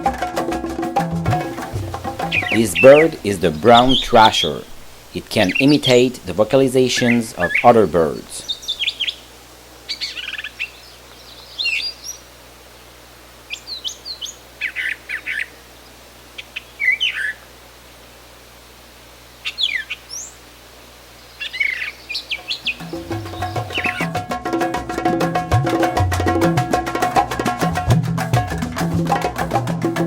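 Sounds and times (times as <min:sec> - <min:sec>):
music: 0:00.0 - 0:04.6, 0:22.8 - 0:30.0
thrasher singing: 0:01.2 - 0:08.8, 0:22.4 - 0:30.0.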